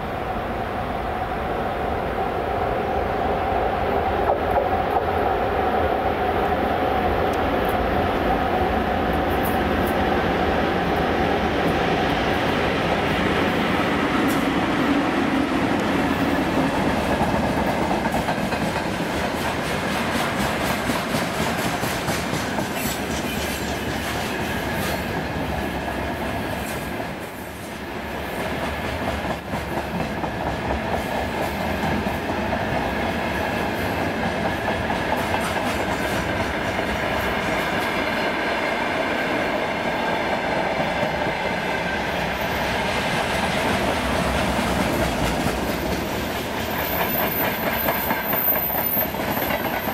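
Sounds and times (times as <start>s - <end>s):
freight train wheels clattering: 11.6s - 25.9s, 28.4s - 38.5s, 40.6s - 49.9s.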